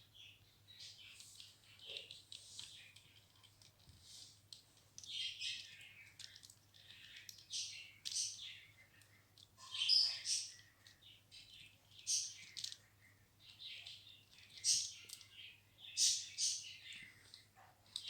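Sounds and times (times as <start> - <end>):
parrot chirping and chattering: 9.6 - 10.7.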